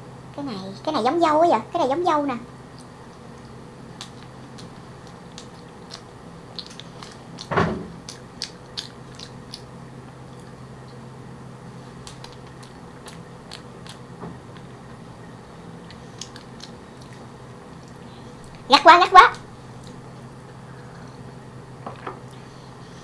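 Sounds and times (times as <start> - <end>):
low steady hum: 0.0 - 23.0
chewing with wet mouth clicks: 2.7 - 11.0, 11.9 - 15.0, 15.8 - 18.7.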